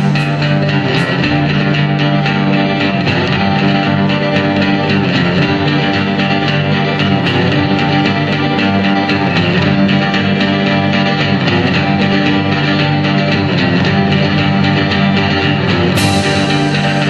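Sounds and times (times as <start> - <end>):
plucked guitar: 0.0 - 17.0
steady bass: 0.0 - 17.0.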